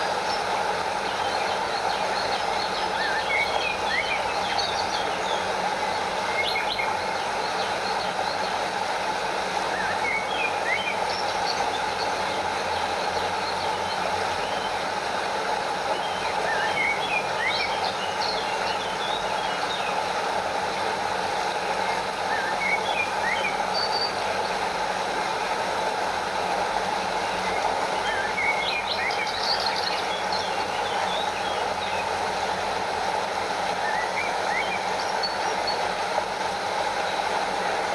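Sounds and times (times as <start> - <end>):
stream flowing over waterfall: 0.0 - 37.9
birds chirping: 27.4 - 32.5.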